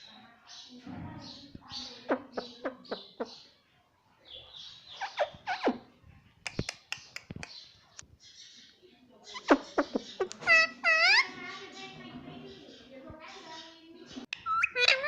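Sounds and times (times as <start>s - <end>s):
parrot chattering: 4.9s - 5.9s, 9.3s - 11.6s, 14.4s - 15.0s
parrot sharp clicks: 6.5s - 7.6s.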